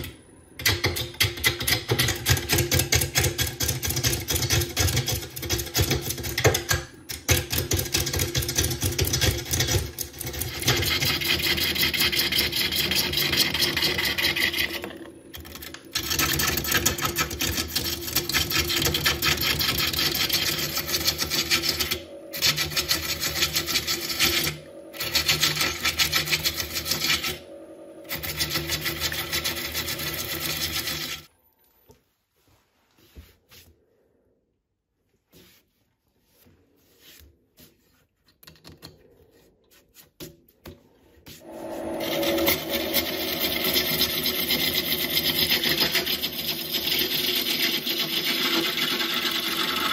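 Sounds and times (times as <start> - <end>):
lathe humming: 10.6 - 31.2, 41.4 - 49.9
lathe tool rattling chatter: 41.6 - 49.0.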